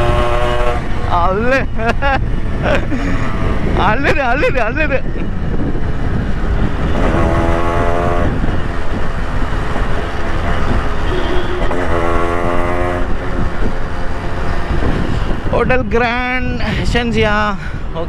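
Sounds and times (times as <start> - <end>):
loud horn blasts: 0.0 - 1.2, 3.1 - 3.8, 6.8 - 8.8, 10.3 - 15.1
engine noise: 0.0 - 18.0
wind noise: 0.0 - 18.0.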